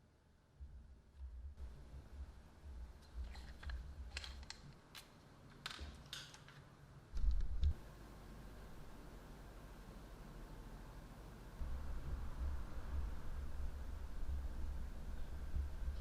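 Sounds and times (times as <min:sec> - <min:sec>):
clicks of small hard parts: 0:03.2 - 0:07.8.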